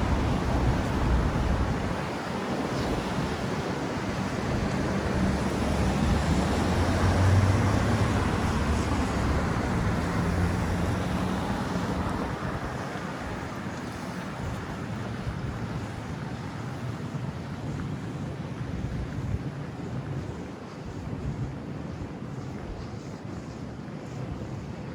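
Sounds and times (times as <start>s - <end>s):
city noise: 0.0s - 24.9s
vehicle passing: 4.9s - 13.4s.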